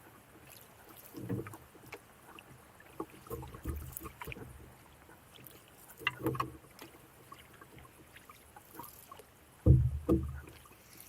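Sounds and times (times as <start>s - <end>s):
paddle splashing water: 0.0s - 11.0s
dull knocks on canoe hull: 9.6s - 10.5s.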